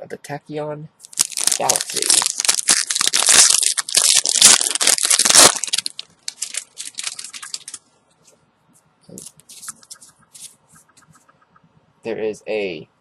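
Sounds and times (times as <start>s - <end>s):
foil wrapper crinkling and tearing: 1.0s - 7.8s.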